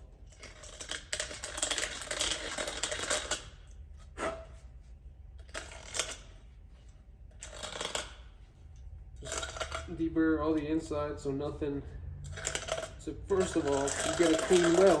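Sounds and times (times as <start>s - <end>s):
deburring tool scraping metal pipe: 7.3s - 10.2s, 12.2s - 15.0s.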